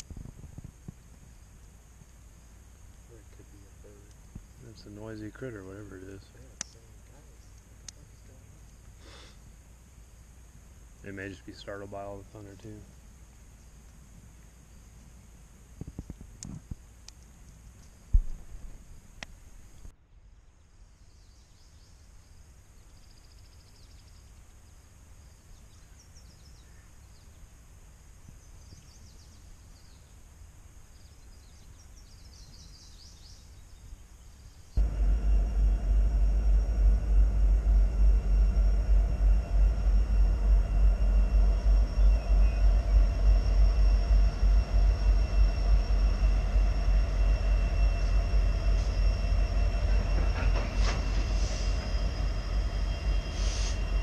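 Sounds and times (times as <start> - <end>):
freight train rumble: 3.1 - 8.5, 34.8 - 54.0
steady engine tones: 3.1 - 8.5, 34.8 - 54.0
faint high chirps: 34.6 - 54.0.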